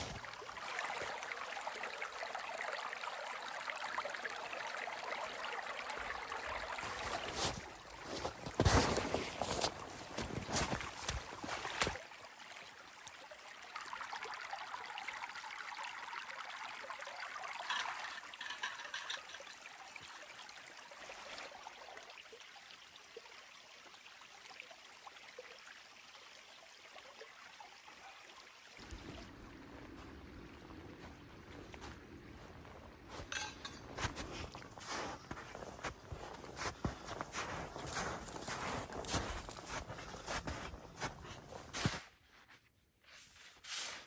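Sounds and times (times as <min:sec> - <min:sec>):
flowing water hiss: 0:00.0 - 0:13.3, 0:28.8 - 0:42.2, 0:43.1 - 0:44.0.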